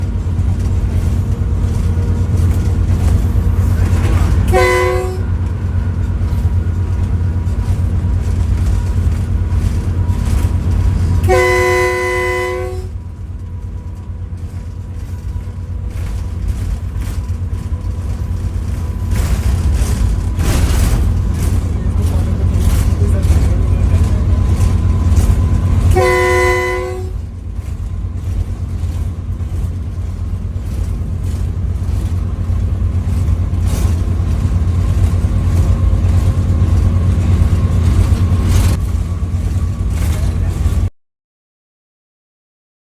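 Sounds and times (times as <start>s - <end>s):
moving train rumble: 0.0s - 40.9s
locomotive horn blasts: 4.4s - 5.9s, 11.2s - 13.0s, 25.8s - 27.3s.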